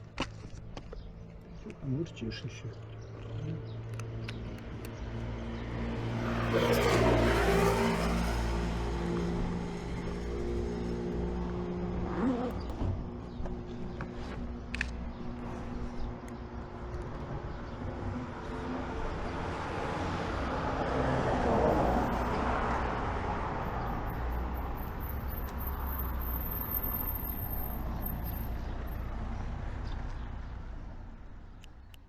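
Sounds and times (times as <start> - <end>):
vehicle engine and tyre noise: 0.0 - 32.0.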